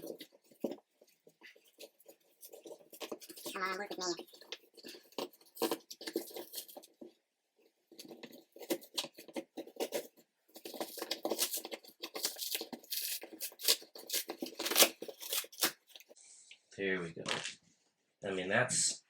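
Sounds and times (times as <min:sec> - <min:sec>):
cardboard scraping and tearing: 0:00.0 - 0:07.1, 0:07.9 - 0:16.2
cardboard snapping: 0:08.0 - 0:16.1.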